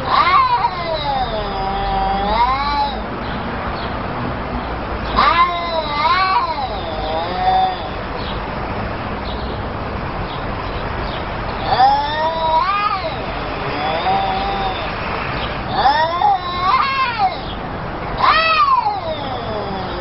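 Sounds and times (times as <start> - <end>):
cats yowling: 0.0 - 3.3, 5.0 - 8.2, 11.5 - 20.0.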